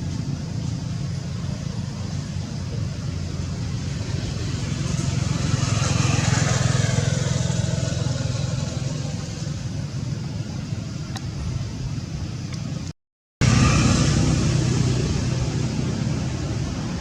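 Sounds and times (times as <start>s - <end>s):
vehicle passing by: 0.0s - 10.0s, 13.4s - 17.0s
low engine hum: 0.0s - 17.0s.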